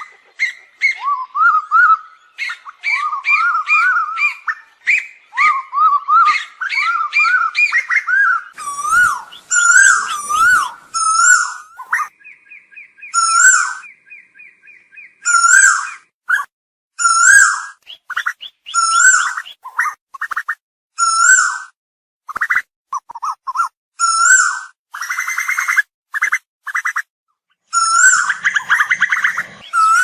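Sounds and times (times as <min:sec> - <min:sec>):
bird calling whistled notes: 0:00.0 - 0:21.7, 0:27.7 - 0:30.0.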